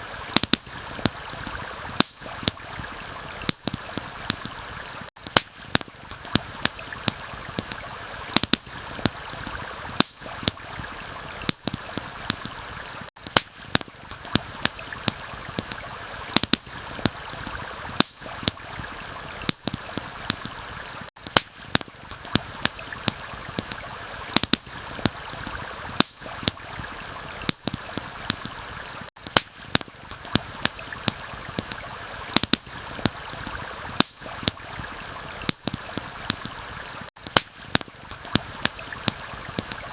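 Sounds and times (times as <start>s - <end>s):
campfire crackling: 0.0s - 39.9s
stream flowing: 0.0s - 39.9s.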